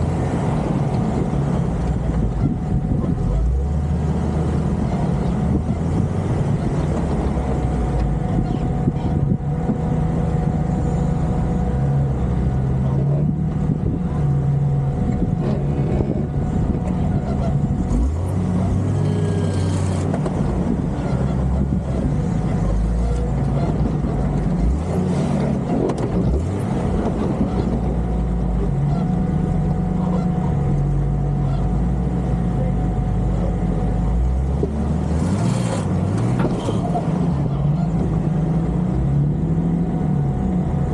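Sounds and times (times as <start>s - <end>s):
car engine under load: 0.0s - 40.9s.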